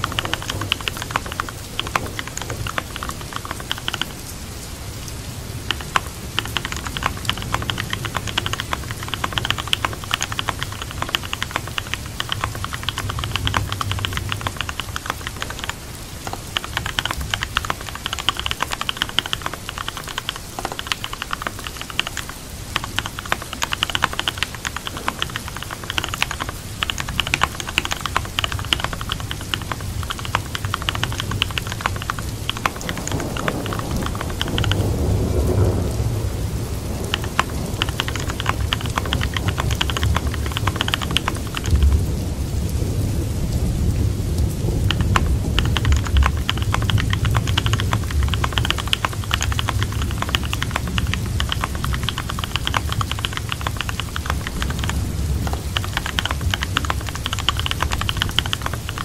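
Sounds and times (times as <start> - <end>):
keyboard typing clicks: 0.0 - 4.3, 5.6 - 35.9, 36.9 - 42.1, 44.8 - 59.0
steady rain: 0.0 - 59.0
low thunder rumble: 33.0 - 40.8.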